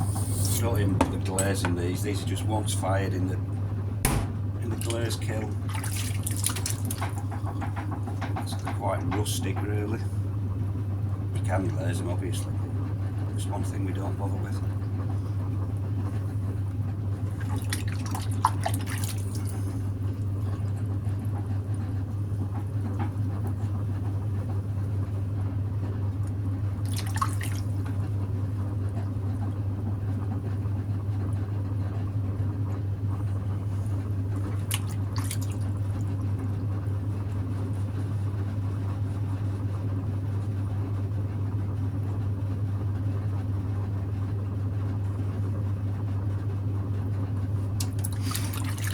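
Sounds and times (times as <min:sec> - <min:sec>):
potter's wheel motor humming: 0:00.0 - 0:05.7
wet clay drips and squelches: 0:04.7 - 0:07.2, 0:17.3 - 0:19.6, 0:26.2 - 0:27.7, 0:34.3 - 0:36.1, 0:47.8 - 0:48.9.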